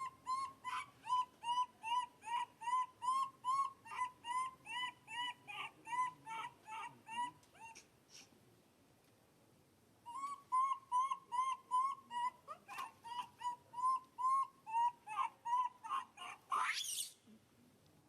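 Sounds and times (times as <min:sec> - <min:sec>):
baby monkey squeaking: 0:00.0 - 0:07.8, 0:10.1 - 0:17.2
monkey squeal sweeping upward: 0:15.1 - 0:17.2.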